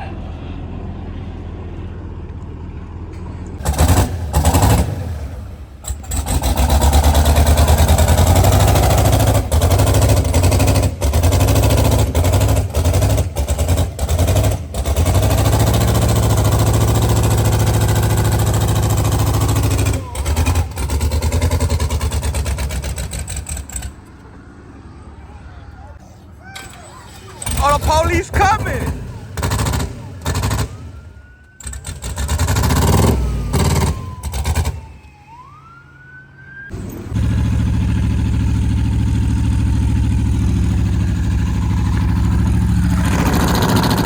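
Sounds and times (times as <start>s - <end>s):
car engine revving: 3.6s - 24.0s, 26.9s - 35.1s, 36.7s - 44.0s.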